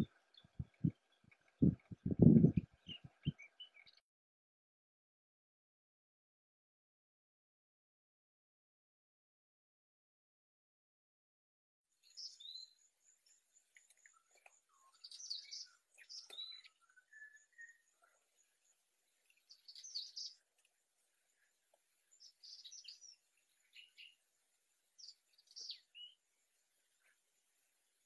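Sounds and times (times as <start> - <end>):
small birds chirping: 0.0 - 4.0, 11.9 - 28.0.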